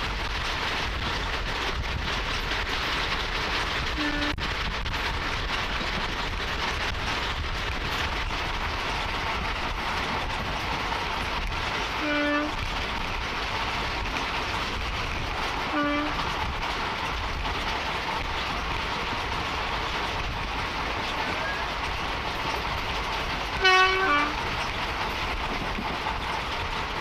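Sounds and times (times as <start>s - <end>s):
train rumbling: 0.0s - 27.0s
train horn toots: 4.0s - 4.4s, 12.0s - 12.7s, 15.7s - 16.2s, 23.5s - 24.4s.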